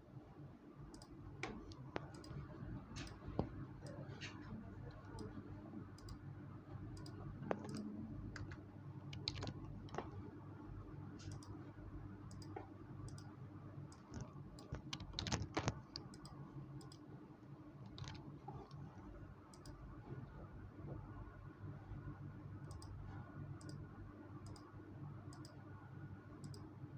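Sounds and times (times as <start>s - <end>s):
low steady hum: 0.0s - 26.9s
light clicks and taps: 3.0s - 5.4s.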